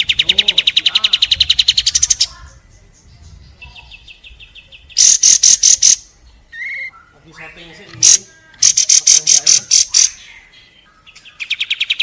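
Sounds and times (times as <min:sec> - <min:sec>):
bird singing rapid notes: 0:00.0 - 0:12.0
bird trill: 0:00.0 - 0:12.0
sharp high bird notes: 0:04.9 - 0:10.5.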